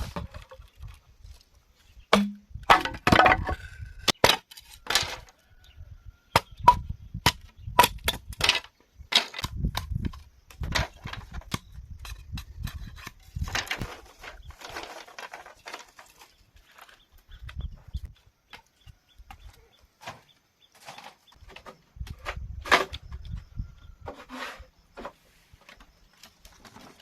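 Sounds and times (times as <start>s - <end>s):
cracking knocks on bamboo: 2.1s - 5.2s.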